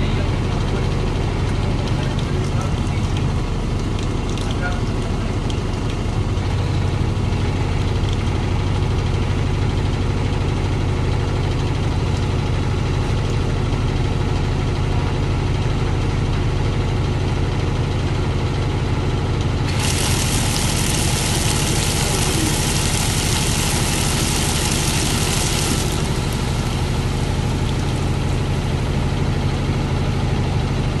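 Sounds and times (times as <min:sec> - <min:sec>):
washing machine spinning hum: 0:00.0 - 0:31.0
loud hissing rush: 0:19.7 - 0:29.0.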